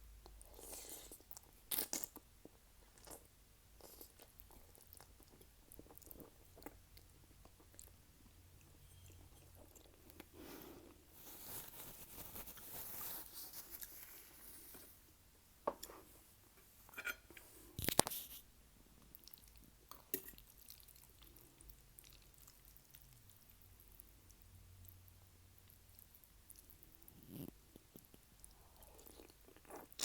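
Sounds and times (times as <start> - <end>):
chewing with wet mouth smacks: 19.0 - 30.0.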